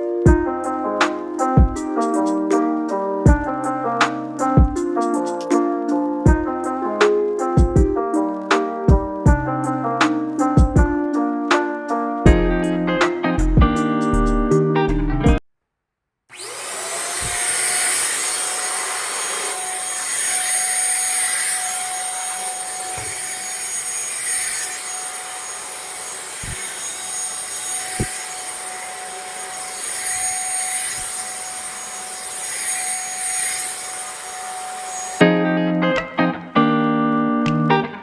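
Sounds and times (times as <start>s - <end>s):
handheld vacuum cleaner whine: 16.3s - 35.2s.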